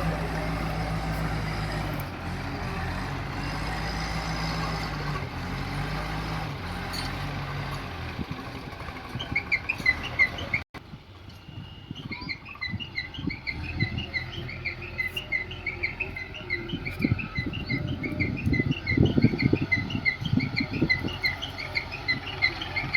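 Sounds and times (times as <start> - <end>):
small birds chirping: 12.0 - 22.9.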